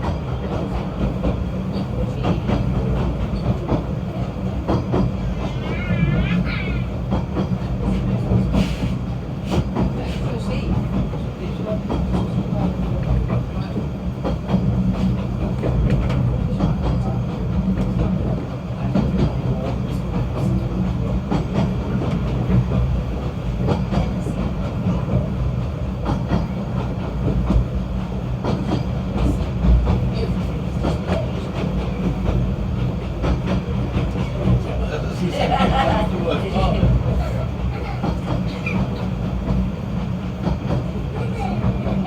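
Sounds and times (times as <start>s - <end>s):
train rumbling: 0.0s - 42.0s.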